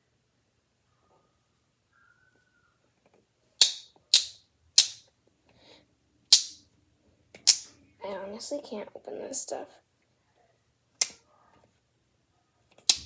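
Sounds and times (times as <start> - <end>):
plastic bottle cap snaps: 3.6 - 5.0, 6.3 - 6.6, 7.4 - 7.7, 11.0 - 11.2, 12.8 - 13.0.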